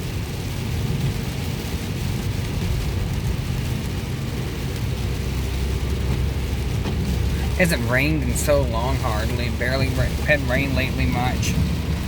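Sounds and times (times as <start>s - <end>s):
engine and tyre rumble: 0.0s - 12.0s
tyres hissing on wet road: 0.0s - 12.0s.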